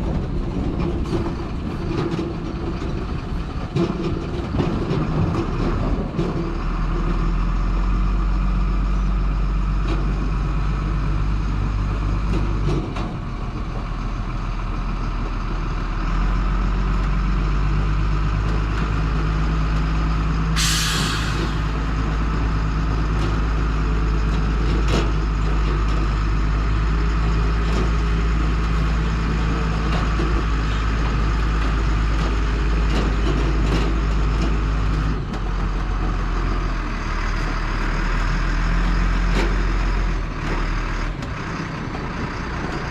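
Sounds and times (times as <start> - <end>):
truck diesel engine running: 0.0 - 42.9
air brake hiss: 20.6 - 21.8.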